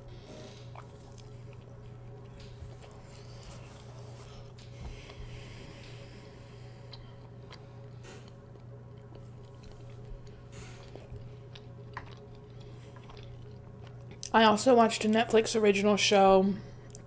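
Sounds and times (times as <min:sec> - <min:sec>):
steady low hum: 0:00.0 - 0:17.0
closed-mouth chewing: 0:00.3 - 0:06.1, 0:06.8 - 0:14.3.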